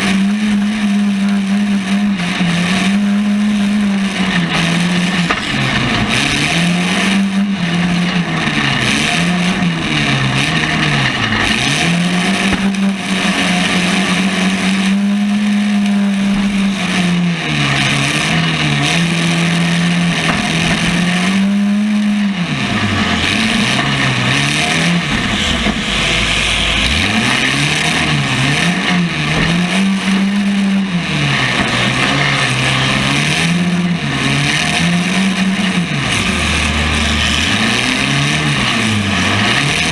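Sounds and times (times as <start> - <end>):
car engine revving: 0.0 - 39.9
steady rushing noise: 0.0 - 39.9.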